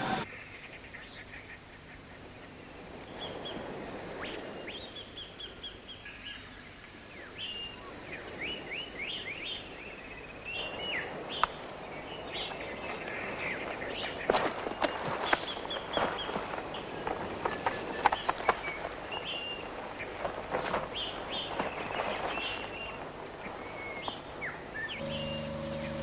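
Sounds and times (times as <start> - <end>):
steady background hiss: 0.0 - 26.0
birds chirping and whistling: 23.6 - 26.0.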